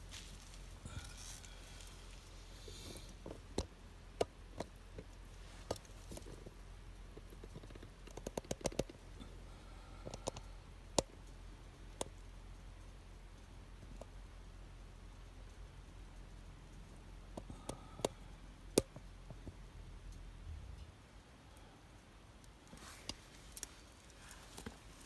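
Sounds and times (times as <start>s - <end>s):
fire embers crackling and popping: 22.4s - 25.0s.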